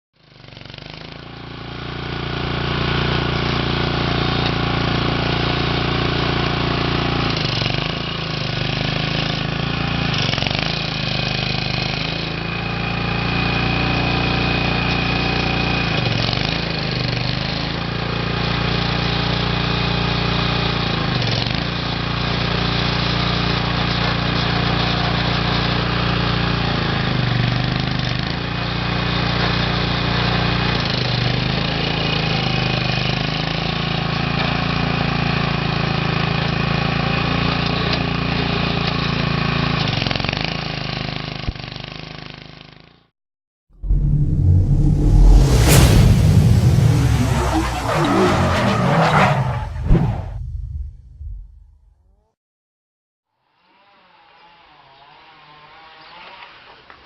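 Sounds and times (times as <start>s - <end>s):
small tractor engine running: 0.3s - 15.7s.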